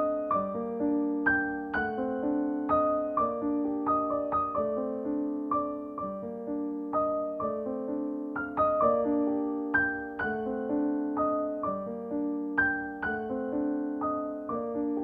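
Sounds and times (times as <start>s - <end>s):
gentle slow piano music: 0.0s - 15.0s.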